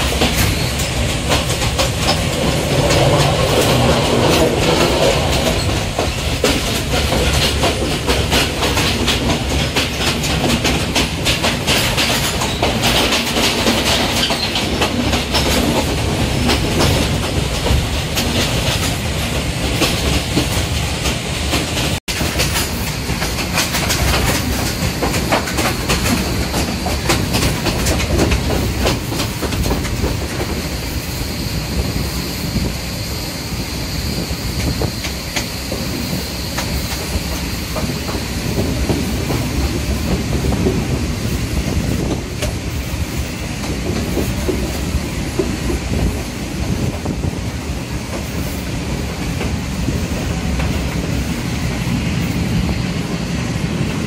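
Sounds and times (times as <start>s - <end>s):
wheels clacking: 0.0s - 30.7s
train wheels rumbling on rail: 0.0s - 54.0s.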